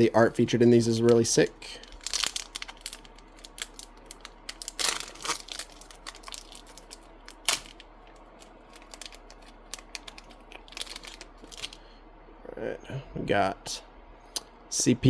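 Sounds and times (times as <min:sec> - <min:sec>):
plastic wrapper crinkling and tearing: 0:01.8 - 0:11.8.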